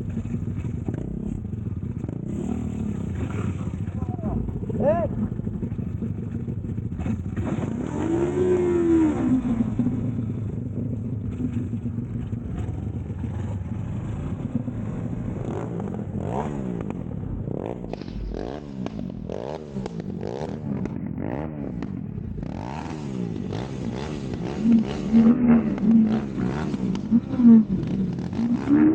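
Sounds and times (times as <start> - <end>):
motorcycle engines revving: 0.0 - 28.9.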